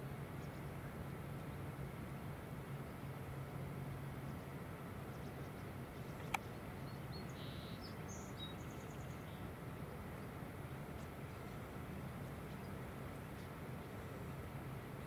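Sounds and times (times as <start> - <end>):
low hiss and hum: 0.0 - 15.0
small birds chirping: 4.2 - 10.3, 11.0 - 14.2
sharp click: 6.2 - 6.5.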